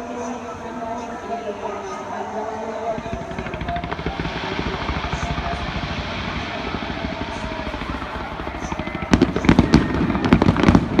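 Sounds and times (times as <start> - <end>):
fireworks bursting rumble: 0.7 - 11.0
sharp firework bangs: 2.8 - 11.0.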